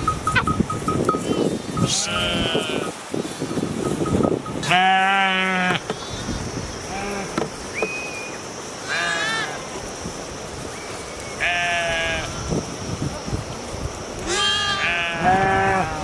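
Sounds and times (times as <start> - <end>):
sheep bleating: 1.8 - 2.9, 4.6 - 5.8, 14.3 - 16.0.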